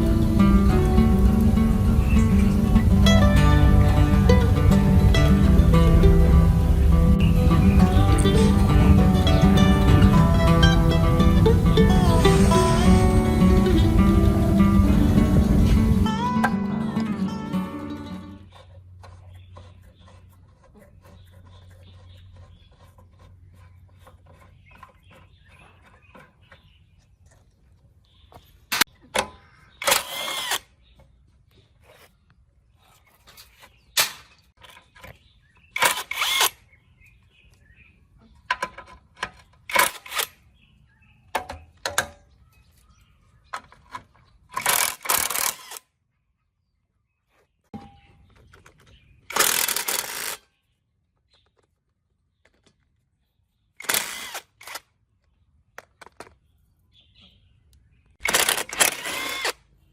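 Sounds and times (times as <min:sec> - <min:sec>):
short scraping or hissing bursts: 0:11.5 - 0:14.2.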